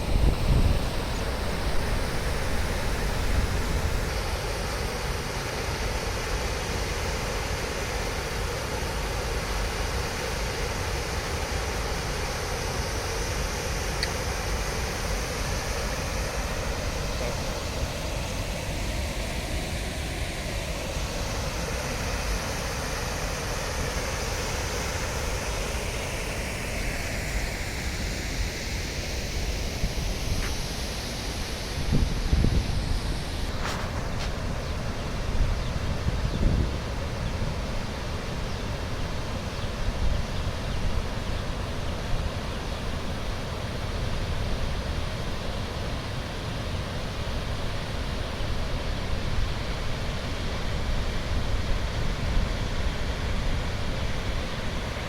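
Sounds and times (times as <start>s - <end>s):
wind buffeting microphone: 0.0s - 4.1s.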